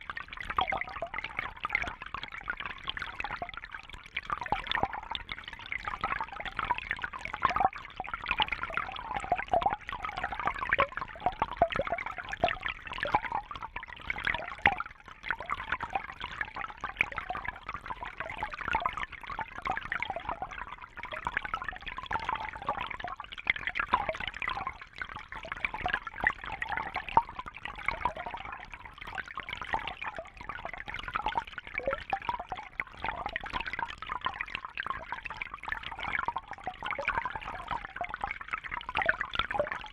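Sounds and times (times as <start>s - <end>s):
water trickling and bubbling: 0.0s - 39.9s.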